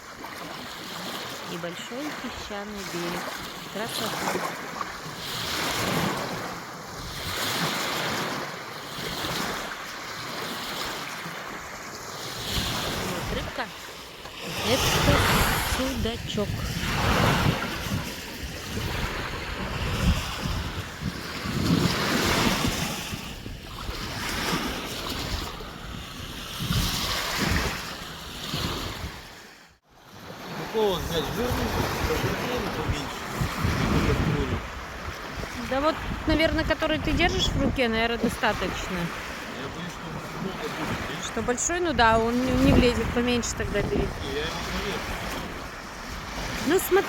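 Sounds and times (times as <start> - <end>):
lake waves washing onto sand: 0.0 - 47.0
wind gusting on microphone: 5.2 - 8.2, 14.4 - 29.4, 30.8 - 47.0.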